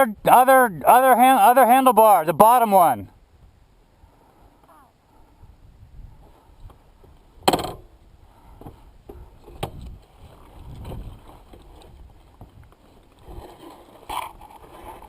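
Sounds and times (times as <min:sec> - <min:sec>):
dirt bike knocks and scuffs: 0:07.4 - 0:07.9
scraping on dirt: 0:08.6 - 0:15.0.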